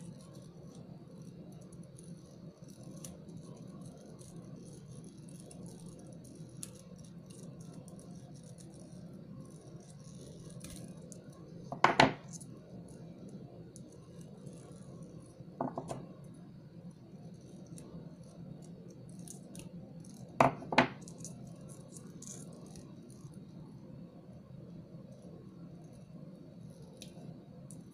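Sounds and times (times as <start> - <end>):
metal pliers and beads clicking: 12.0 - 12.5, 18.9 - 22.9.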